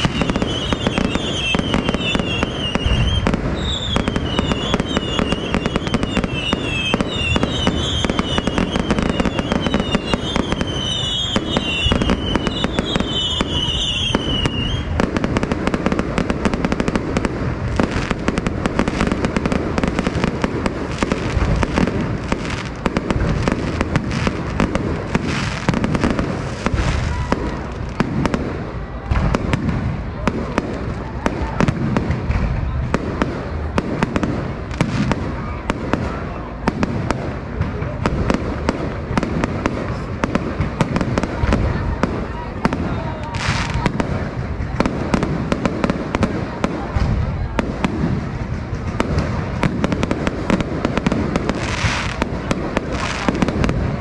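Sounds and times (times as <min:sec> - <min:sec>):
high falling firework whistles: 0:00.0 - 0:15.2
fireworks bangs and crackles: 0:00.0 - 0:54.0.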